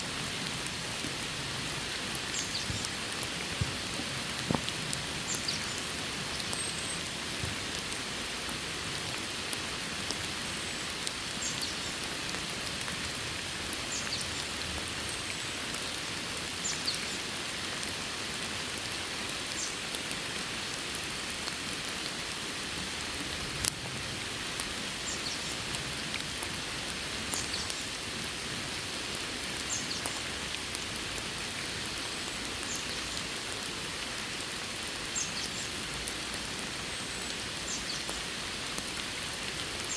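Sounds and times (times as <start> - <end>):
steady rain falling: 0.0 - 39.9
raindrops ticking: 0.1 - 17.9.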